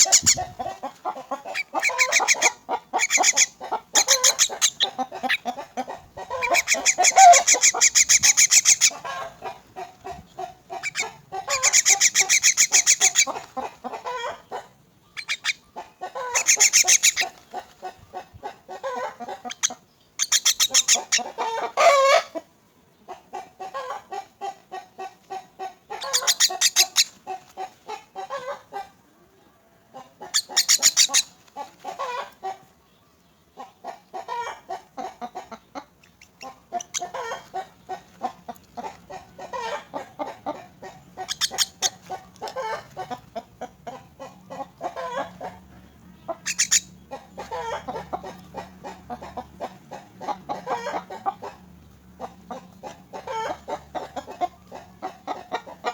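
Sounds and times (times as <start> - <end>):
bird chicks begging calls: 0.0 - 55.9
bird screeching: 1.8 - 5.0, 6.4 - 9.0, 10.9 - 13.3, 19.5 - 22.3, 26.0 - 27.1, 30.4 - 31.3, 41.2 - 42.0, 46.4 - 46.9.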